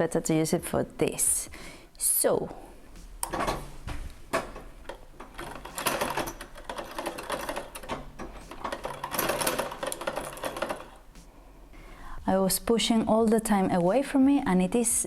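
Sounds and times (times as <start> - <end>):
sewing machine clatter: 4.9 - 11.0
sewing machine clicks: 4.9 - 11.0.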